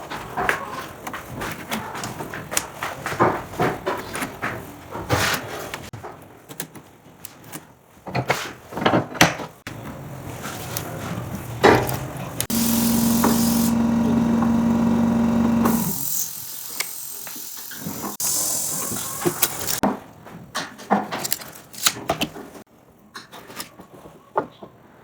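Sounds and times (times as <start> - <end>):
power tool motor running: 12.4 - 19.8.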